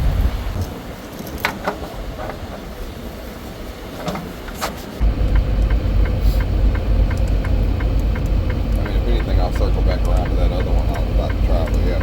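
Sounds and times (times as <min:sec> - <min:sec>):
steady ticking: 0:05.0 - 0:12.0
truck diesel engine running: 0:05.0 - 0:12.0.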